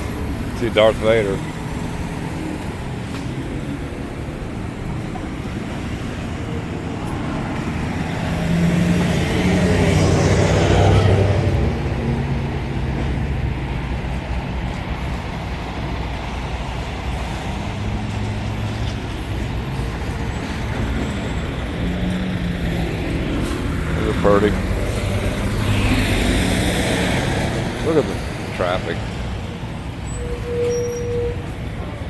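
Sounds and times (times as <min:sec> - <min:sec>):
hum of traffic engines: 0:00.0 - 0:32.0
motor vehicle passing close: 0:21.8 - 0:28.6.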